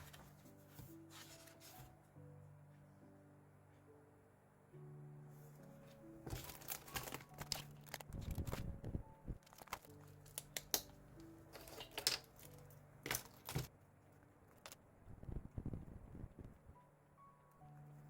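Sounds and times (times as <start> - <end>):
paper crinkling and rustling: 0.0 - 2.0, 6.2 - 10.9
soft piano music: 0.0 - 15.0, 15.8 - 18.0.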